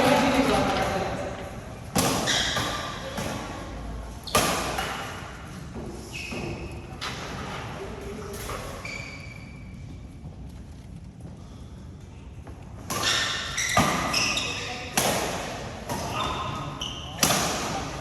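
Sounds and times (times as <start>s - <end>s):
rackets hitting shuttlecock: 1.9s - 3.6s, 4.2s - 5.4s, 12.8s - 18.0s
short high squeaks: 8.6s - 9.8s.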